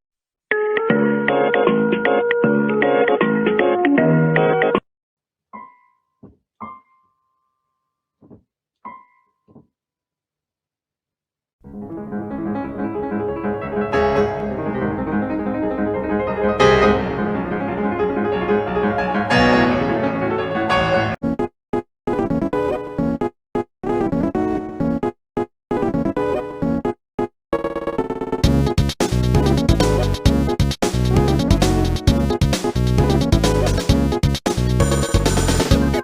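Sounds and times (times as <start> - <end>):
piano music: 0.5 - 4.8, 5.5 - 7.2, 11.6 - 21.2.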